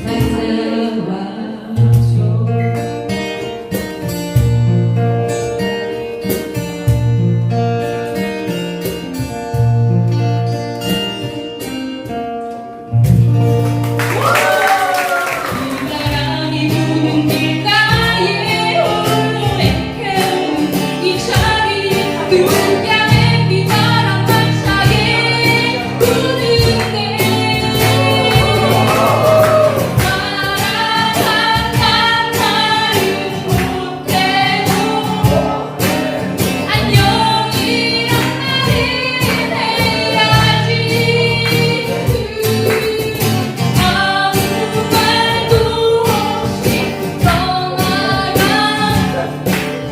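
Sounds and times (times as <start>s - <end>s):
group singing: 0.0s - 2.8s, 15.5s - 49.5s
acoustic guitar strumming: 0.0s - 49.9s.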